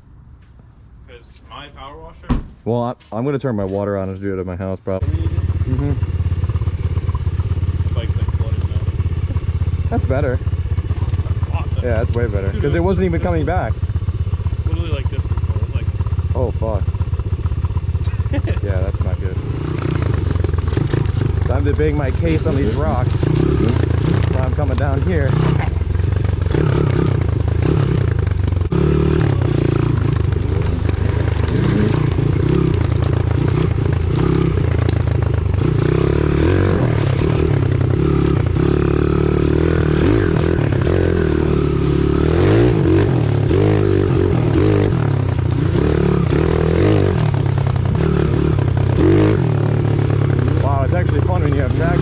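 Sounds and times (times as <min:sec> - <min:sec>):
pit bike engine revving: 0:04.9 - 0:52.0
bike scraping and knocking ground: 0:19.6 - 0:52.0.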